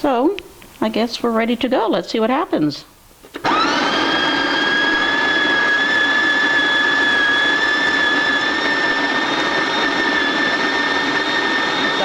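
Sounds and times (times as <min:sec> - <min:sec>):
coffee grinder running: 0:03.4 - 0:12.0.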